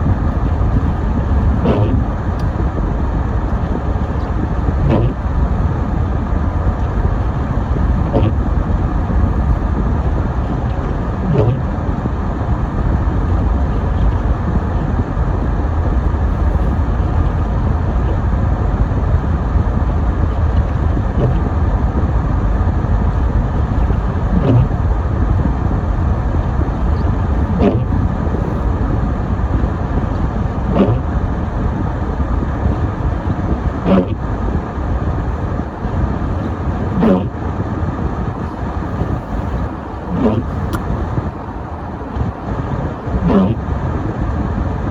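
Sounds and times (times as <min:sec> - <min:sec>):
car driving on snowy road: 0:00.0 - 0:44.9
windshield wipers knocking and squeaking: 0:00.4 - 0:02.6, 0:03.5 - 0:05.2, 0:06.6 - 0:11.6, 0:20.3 - 0:21.5, 0:23.7 - 0:24.8, 0:26.8 - 0:28.6, 0:38.5 - 0:41.3.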